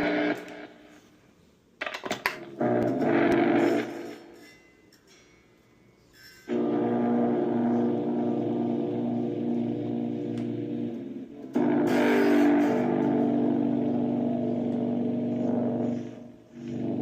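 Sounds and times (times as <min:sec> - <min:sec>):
electric guitar strummed: 0:02.4 - 0:04.4, 0:06.5 - 0:16.1.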